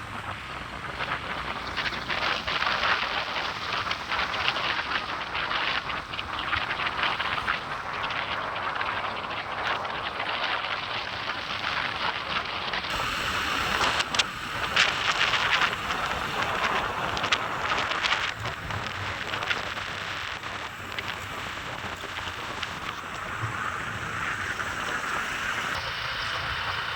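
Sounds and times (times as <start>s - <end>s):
road traffic: 0.0s - 7.8s, 12.8s - 26.9s
wind on microphone: 0.0s - 26.9s
crackling clicks: 1.7s - 25.8s.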